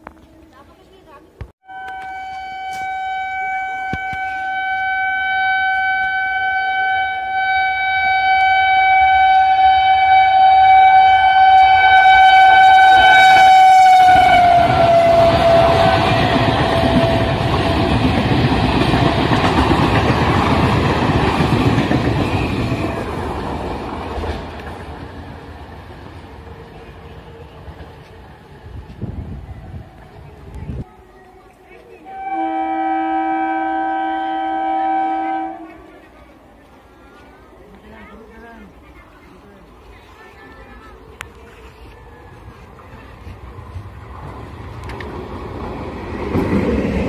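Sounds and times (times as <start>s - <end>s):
train horn: 1.6s - 18.2s, 32.0s - 36.0s
train carriages rushing past: 1.7s - 47.0s.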